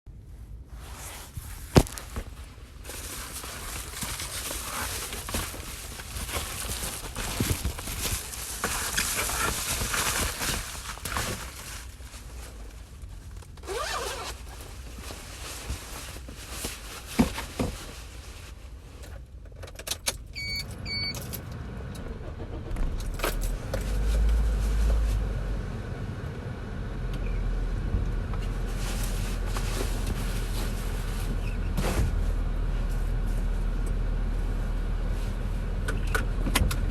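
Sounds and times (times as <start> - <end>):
car engine starting and running: 19.8 - 31.4, 32.0 - 36.9.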